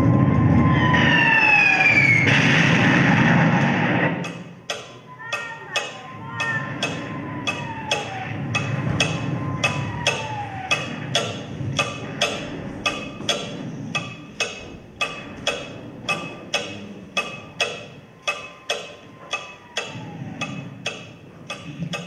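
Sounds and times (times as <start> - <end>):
low rumble: 0.0 - 4.7, 6.1 - 18.2
wood-block ticking: 0.7 - 22.0
thin tone falling in pitch: 4.2 - 22.0.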